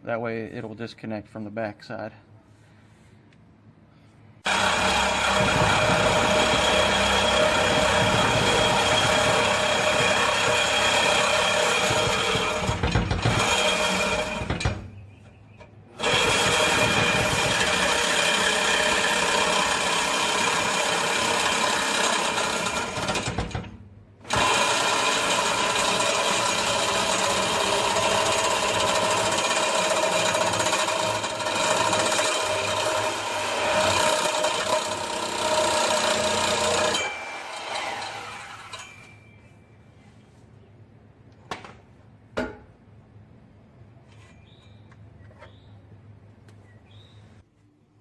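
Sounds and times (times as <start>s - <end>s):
angle grinder cutting steel pipe: 4.5s - 14.6s, 16.0s - 23.4s, 24.3s - 39.1s.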